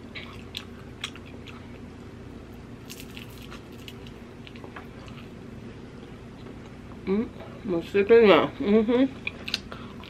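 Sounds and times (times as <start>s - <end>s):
wet chewing and lip-smacking: 0.2s - 1.9s.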